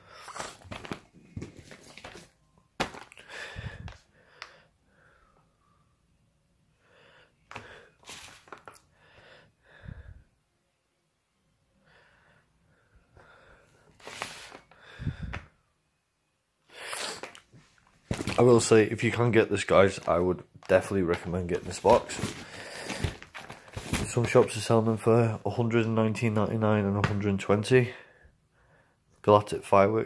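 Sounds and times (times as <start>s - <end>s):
box rustling and knocking: 0.4s - 3.2s, 18.0s - 18.7s, 21.1s - 24.5s.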